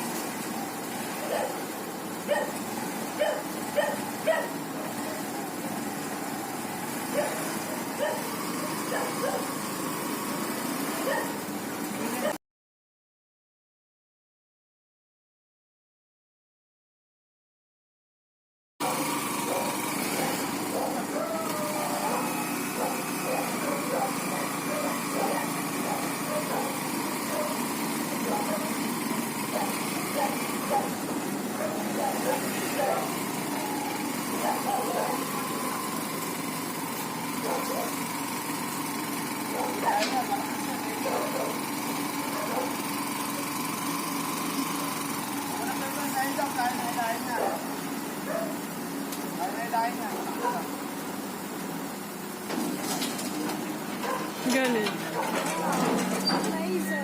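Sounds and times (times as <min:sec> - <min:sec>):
vehicle engine and road noise: 0:00.0 - 0:12.4, 0:18.8 - 0:57.0
dog barking: 0:01.2 - 0:01.7, 0:02.3 - 0:02.6, 0:03.2 - 0:05.2, 0:07.1 - 0:09.5, 0:11.0 - 0:11.4, 0:18.8 - 0:27.6, 0:28.2 - 0:28.8, 0:29.5 - 0:31.0, 0:31.6 - 0:33.2, 0:34.4 - 0:35.4, 0:37.4 - 0:38.0, 0:39.5 - 0:40.3, 0:41.0 - 0:41.6, 0:42.3 - 0:42.8, 0:47.3 - 0:47.7, 0:48.3 - 0:48.6, 0:50.4 - 0:50.7, 0:54.0 - 0:54.3, 0:55.1 - 0:55.9.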